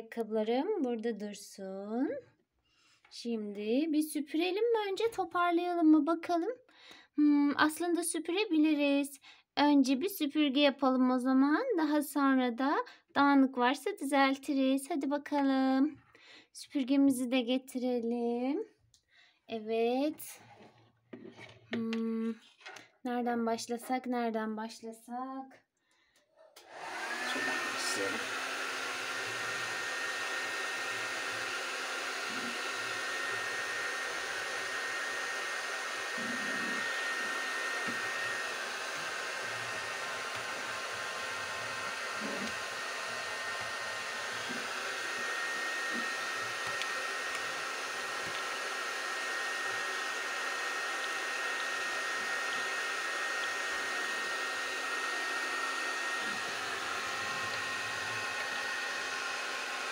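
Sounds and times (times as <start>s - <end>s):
toy vacuum motor whine: 26.6s - 58.9s.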